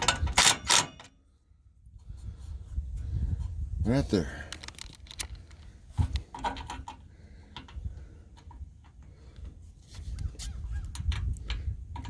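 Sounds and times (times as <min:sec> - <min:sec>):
parts and tools clicking: 0:00.0 - 0:01.1, 0:04.3 - 0:07.8.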